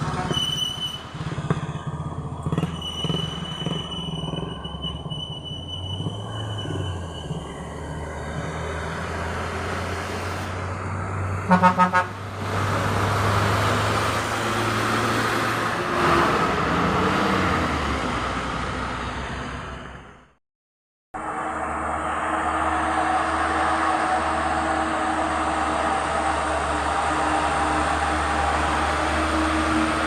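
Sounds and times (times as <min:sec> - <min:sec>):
heavy vehicle engine running: 0:00.0 - 0:20.3, 0:21.2 - 0:30.0
passing traffic engine and tyres: 0:00.0 - 0:20.4, 0:21.2 - 0:30.0
short horn toots: 0:11.5 - 0:12.2.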